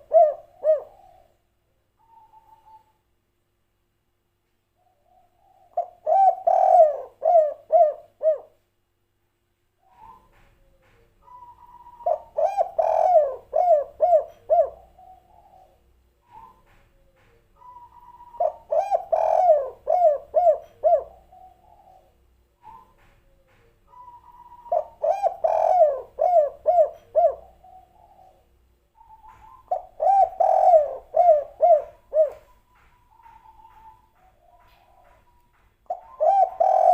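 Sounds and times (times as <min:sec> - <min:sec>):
dove cooing: 0:00.0 - 0:01.4, 0:02.0 - 0:03.0, 0:04.8 - 0:08.6, 0:09.9 - 0:36.9.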